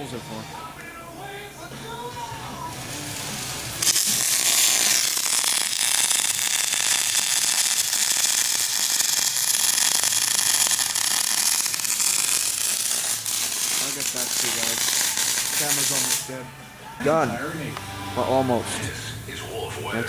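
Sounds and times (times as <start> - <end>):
arc welder crackling hiss: 2.0 - 16.4.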